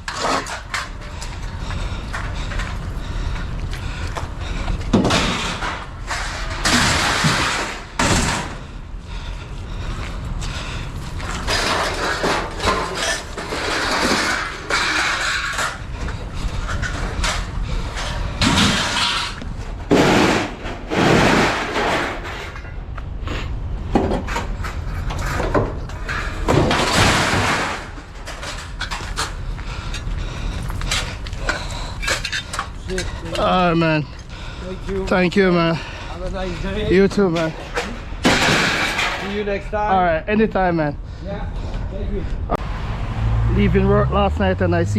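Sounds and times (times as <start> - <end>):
scrap metal clanking and scraping: 0.0 - 1.2, 4.9 - 8.6, 11.2 - 22.8, 37.2 - 39.6.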